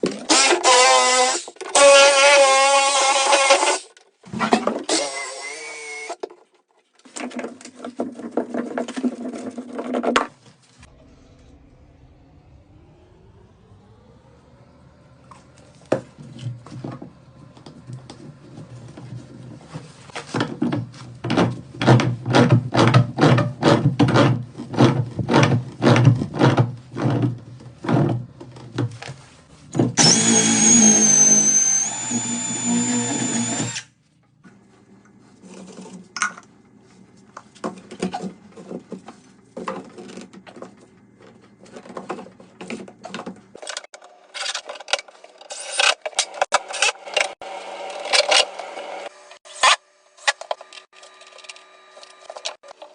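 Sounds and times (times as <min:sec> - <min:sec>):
high whine: 0:10.7 - 0:20.0
clicks and scrapes: 0:37.3 - 0:52.9.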